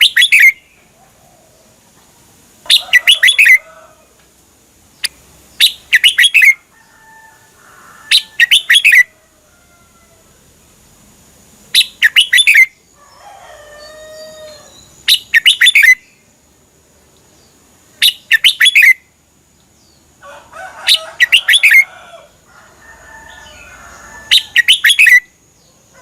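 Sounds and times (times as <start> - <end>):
bird singing whistled notes: 0.0 - 0.8, 2.7 - 3.6, 5.0 - 6.6, 8.1 - 9.1, 11.7 - 12.8, 14.2 - 16.3, 17.4 - 19.1, 20.9 - 21.9, 24.3 - 25.4
soft low bird calls: 2.6 - 4.2, 4.9 - 7.0, 11.7 - 16.3, 17.5 - 19.1, 23.3 - 26.0.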